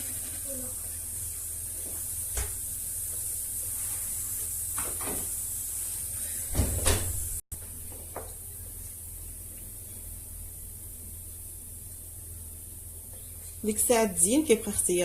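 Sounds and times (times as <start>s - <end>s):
steady hiss: 0.0s - 7.4s.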